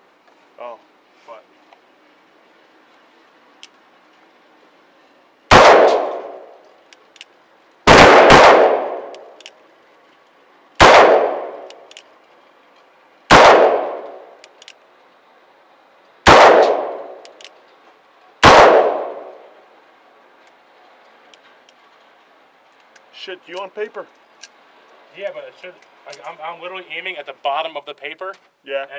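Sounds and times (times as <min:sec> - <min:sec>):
gunshots with ringing echo: 0:05.5 - 0:06.6, 0:07.9 - 0:09.4, 0:10.8 - 0:11.7, 0:13.3 - 0:14.4, 0:16.2 - 0:17.2, 0:18.4 - 0:19.4.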